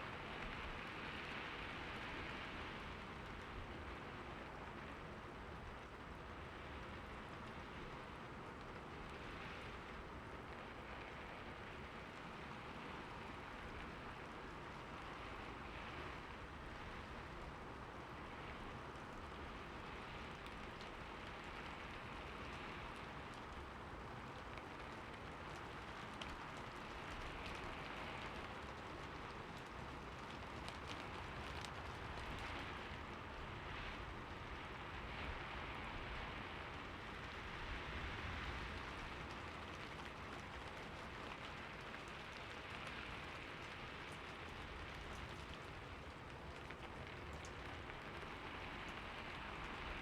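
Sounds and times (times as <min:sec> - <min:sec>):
steady rain hiss: 0:00.0 - 0:50.0
raindrops ticking: 0:36.6 - 0:50.0.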